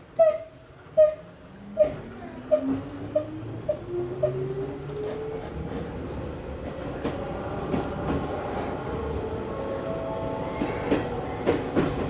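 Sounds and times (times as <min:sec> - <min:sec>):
train running rumble: 0:01.8 - 0:12.0.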